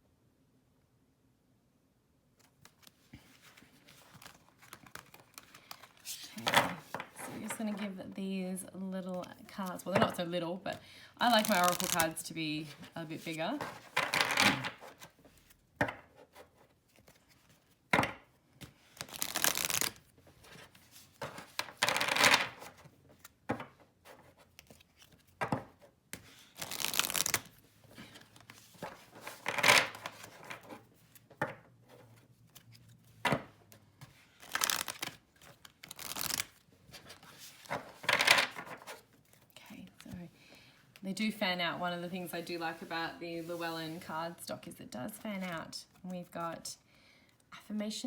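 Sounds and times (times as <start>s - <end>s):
cards sliding while shuffled: 18.6s - 23.3s, 26.1s - 32.9s, 34.0s - 39.5s.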